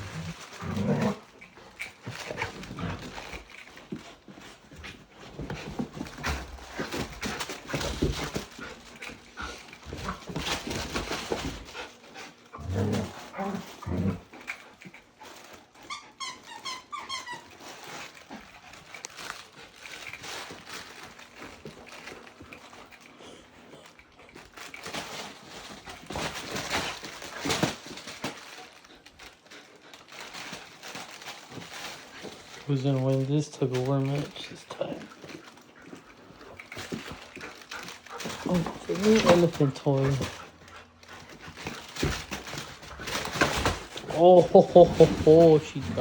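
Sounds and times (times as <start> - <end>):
puppies scuffling and rustling: 0.0 - 46.0
puppy growling: 0.0 - 46.0
puppy whimpering: 15.7 - 18.2.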